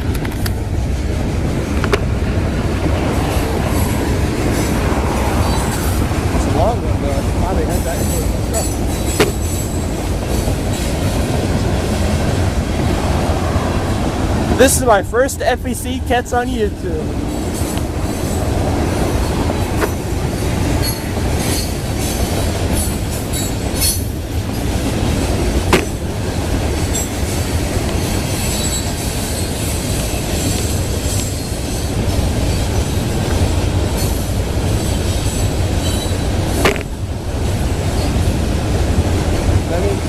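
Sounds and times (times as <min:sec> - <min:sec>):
train wheels rumbling on rails: 0:00.0 - 0:40.0
sharp metal clanks: 0:07.8 - 0:11.0, 0:35.9 - 0:37.0
high wheel squeal: 0:17.3 - 0:24.7, 0:26.8 - 0:33.4, 0:34.0 - 0:37.0.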